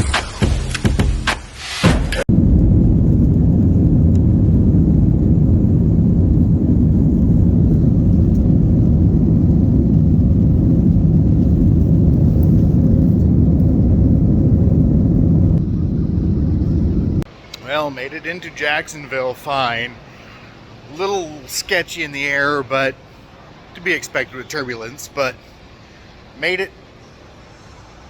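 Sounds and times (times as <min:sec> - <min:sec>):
vehicle cabin rumble: 0:02.2 - 0:17.3.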